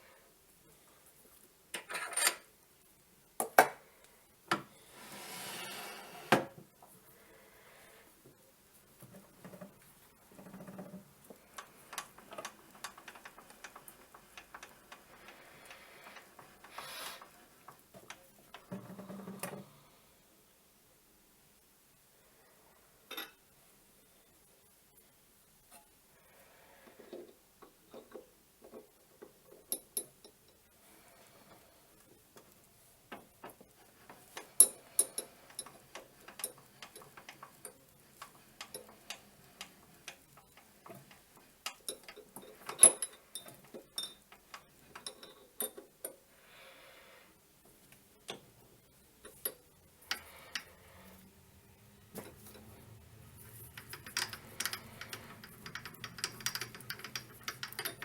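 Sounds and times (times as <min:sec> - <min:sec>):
steel parts clicking and tapping: 0:10.4 - 0:19.6, 0:32.4 - 0:46.2, 0:49.2 - 0:50.8, 0:52.1 - 0:58.0.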